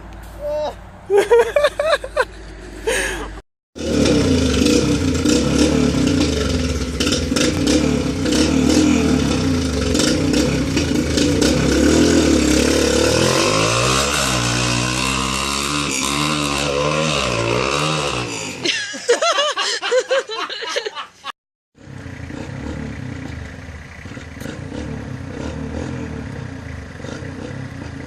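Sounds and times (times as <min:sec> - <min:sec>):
dirt bike engine revving: 0:03.8 - 0:18.7, 0:21.8 - 0:28.0.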